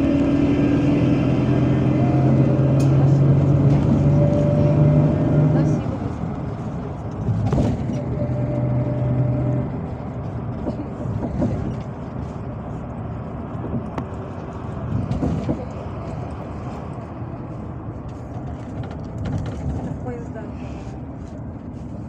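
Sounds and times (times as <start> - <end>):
bus engine drone: 0.0 - 22.0
road rumble: 0.0 - 22.0.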